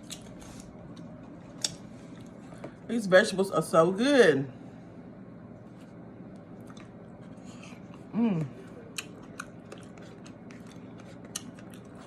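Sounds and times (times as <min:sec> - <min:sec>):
chewing vegetables: 0:00.0 - 0:02.6, 0:06.3 - 0:12.0.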